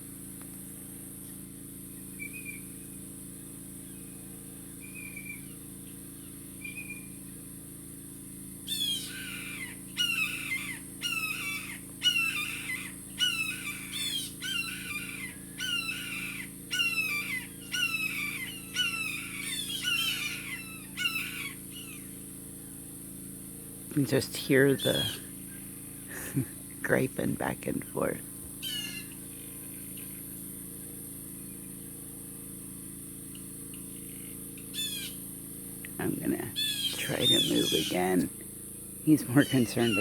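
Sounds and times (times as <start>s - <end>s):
jays harsh jeer calls: 36.5s - 38.4s, 39.1s - 40.0s.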